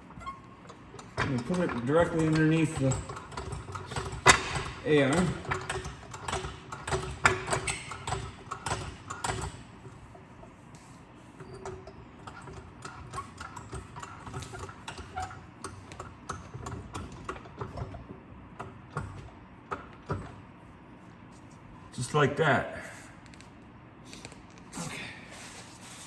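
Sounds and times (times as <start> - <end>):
floor jack metal clicks and clanks: 0.7 - 9.6.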